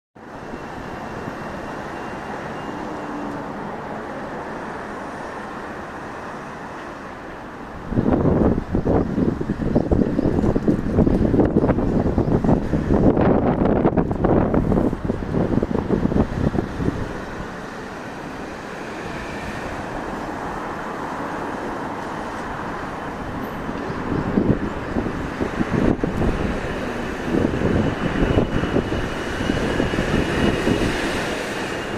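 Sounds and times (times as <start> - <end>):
strong wind rushing: 7.6 - 31.9.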